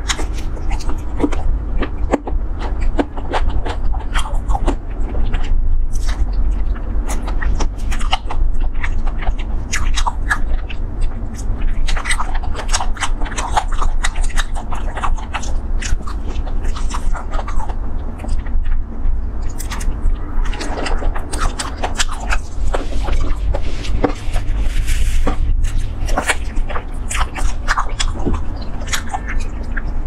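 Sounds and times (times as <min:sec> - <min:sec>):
chewing with wet mouth clicks: 0:00.0 - 0:30.0
steady low hum: 0:00.0 - 0:30.0.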